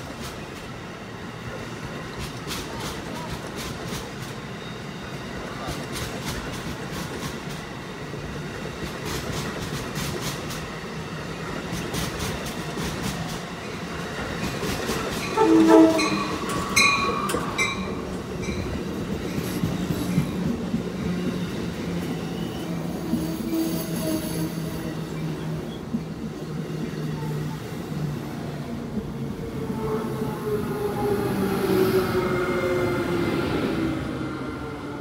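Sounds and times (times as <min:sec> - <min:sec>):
train wheels clicking over joints: 0:02.1 - 0:04.4, 0:05.6 - 0:07.7, 0:08.7 - 0:10.7, 0:11.6 - 0:13.6
train horn blasts: 0:15.3 - 0:16.5.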